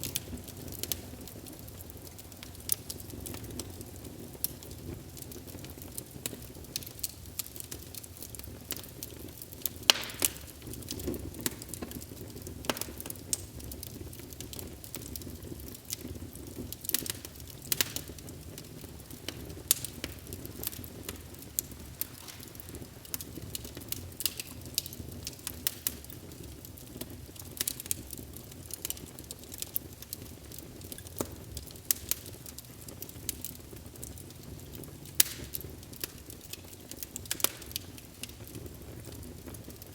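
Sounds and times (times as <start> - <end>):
low rumble of flame: 0.0 - 39.9
wood fire crackling: 0.0 - 39.9
sharp pops and snaps: 9.7 - 12.0, 12.6 - 13.5, 19.2 - 26.1, 34.1 - 38.6.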